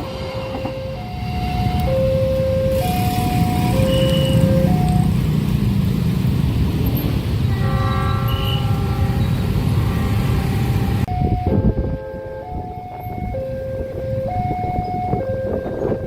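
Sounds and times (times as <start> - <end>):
two-tone crossing alarm: 0.0 - 5.4, 7.6 - 16.0
train rumbling: 0.0 - 16.0
train horn: 7.5 - 11.0.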